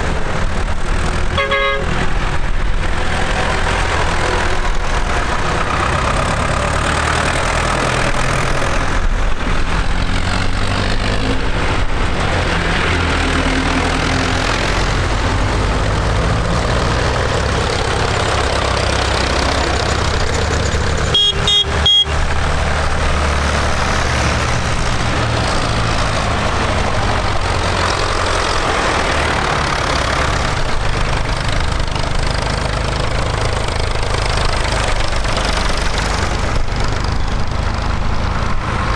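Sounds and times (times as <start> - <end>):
tractor engines running: 0.0 - 38.9
short high horn beeps: 21.1 - 22.2.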